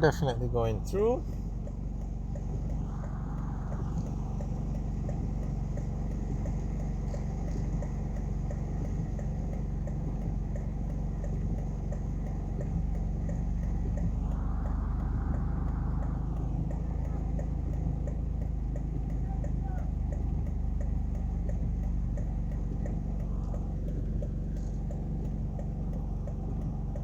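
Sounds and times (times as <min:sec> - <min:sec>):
car engine idling: 0:00.0 - 0:27.0
hazard light flasher ticking: 0:00.0 - 0:27.0
vehicle passing: 0:02.0 - 0:06.6, 0:13.6 - 0:18.8.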